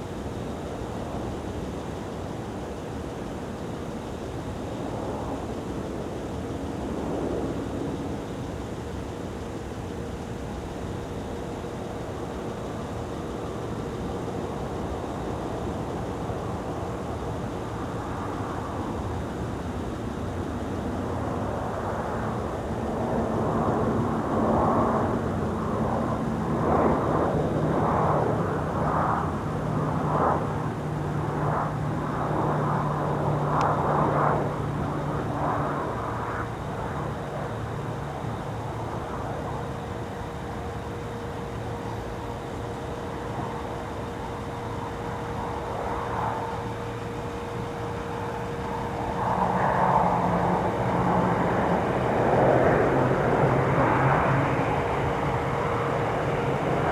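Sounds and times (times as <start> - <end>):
turboprop engines droning: 0.0 - 56.9.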